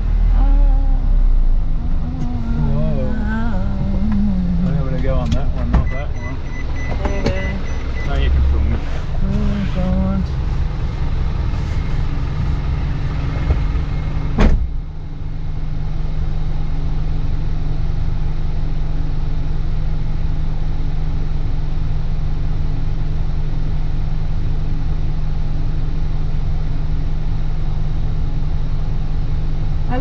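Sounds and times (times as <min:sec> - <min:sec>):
diesel truck engine droning: 0:00.0 - 0:30.0
sharp knock: 0:14.4 - 0:14.8.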